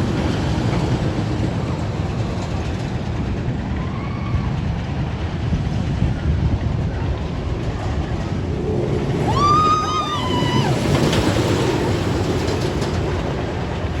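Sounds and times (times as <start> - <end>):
roller coaster rumbling on track: 0.0 - 14.0
high-pitched wail: 9.2 - 11.3.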